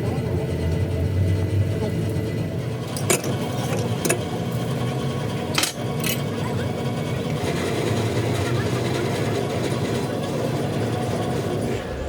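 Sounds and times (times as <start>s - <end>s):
machine humming: 0.0s - 12.0s
metal tools clinking: 5.5s - 6.3s.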